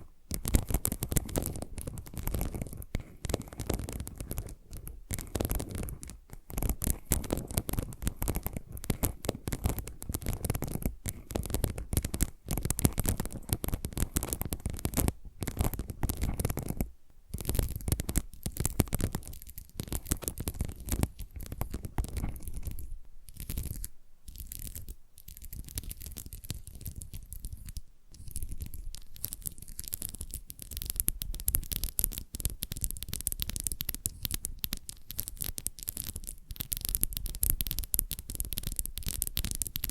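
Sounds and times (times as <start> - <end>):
fingernail scratching and tapping: 0.3 - 39.9.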